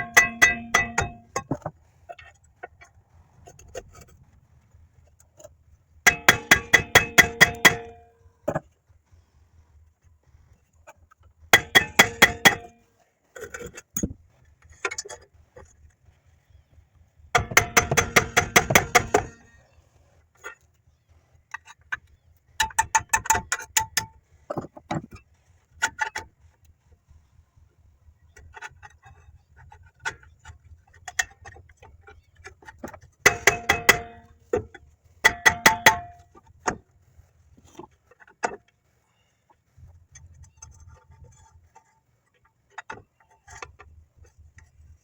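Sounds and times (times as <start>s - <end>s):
tools tapping on metal: 0.0s - 1.7s, 6.1s - 8.6s, 11.6s - 12.8s, 17.4s - 19.5s, 32.8s - 36.8s.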